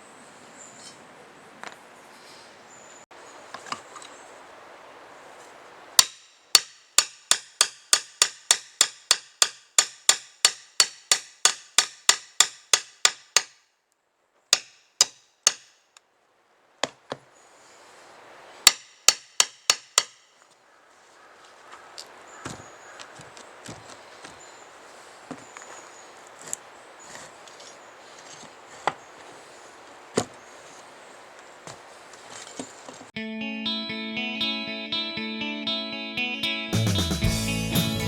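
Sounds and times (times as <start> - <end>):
hammer driving nails into boards: 6.0 - 13.6, 14.6 - 15.8, 18.7 - 20.2.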